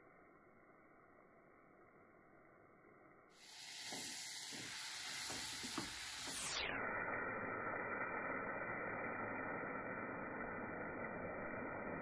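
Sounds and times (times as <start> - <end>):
food sizzling in hot oil: 3.4 - 12.0.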